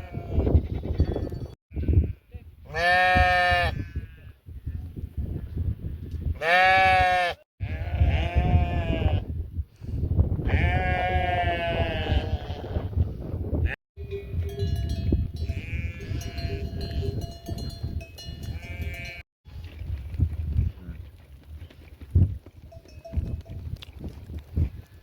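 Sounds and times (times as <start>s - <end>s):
sheep bleating: 1.7s - 4.3s, 6.4s - 9.2s, 10.5s - 12.8s, 18.6s - 19.2s.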